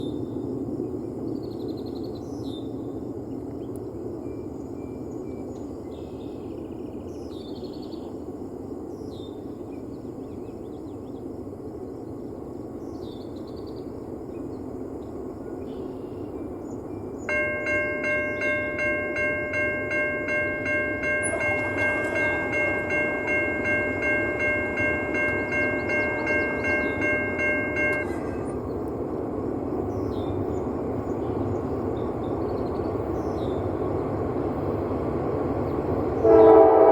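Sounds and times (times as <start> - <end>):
railroad crossing bell ringing: 17.3 - 28.8.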